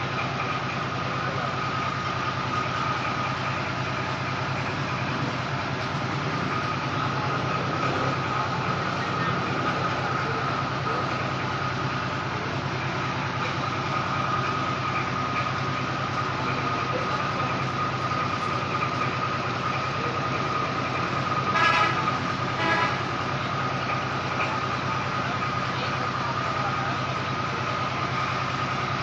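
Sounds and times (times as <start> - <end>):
machine running with whine: 0.0 - 29.0
horn toots: 21.5 - 23.1.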